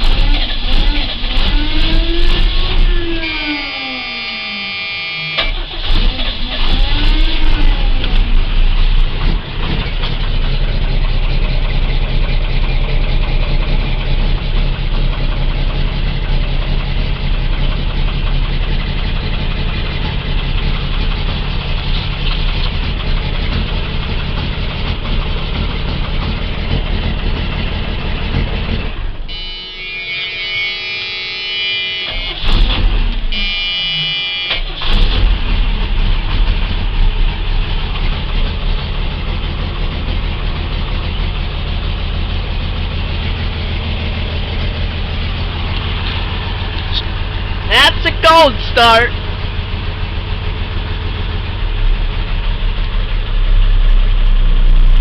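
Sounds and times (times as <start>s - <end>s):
diesel engine running unevenly: 0.0s - 33.4s, 34.7s - 55.0s
high buzzing tone: 3.4s - 5.5s, 29.3s - 32.5s, 33.3s - 34.6s.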